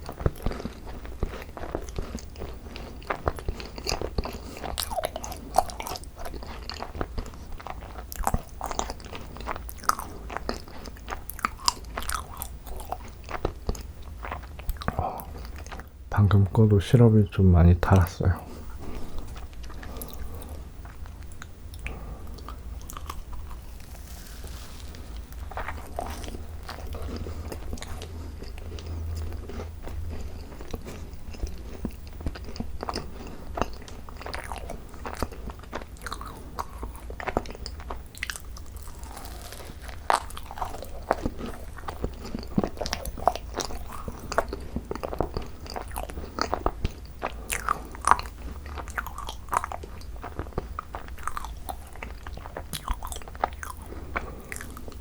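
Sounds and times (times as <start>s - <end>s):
crunching of macaron shells: 0.0s - 16.7s, 17.9s - 55.0s
wet chewing: 0.0s - 16.7s, 17.8s - 55.0s
steady low hum: 11.6s - 35.6s.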